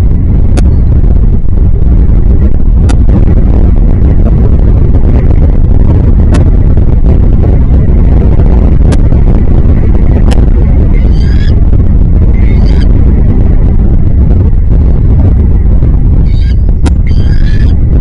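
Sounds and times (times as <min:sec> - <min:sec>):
wind buffeting microphone: 0:00.0 - 0:18.0
high chattering bird call: 0:11.0 - 0:11.6, 0:16.3 - 0:17.7.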